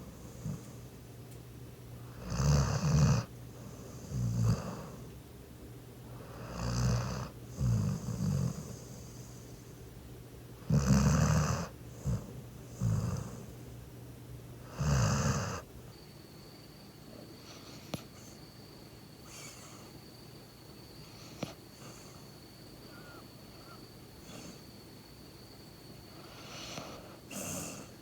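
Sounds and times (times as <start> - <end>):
dog snoring: 0.0 - 0.9, 2.0 - 5.1, 6.1 - 9.6, 10.6 - 13.6, 14.6 - 15.7, 19.2 - 19.9, 21.0 - 22.3, 23.5 - 24.6, 26.1 - 28.0.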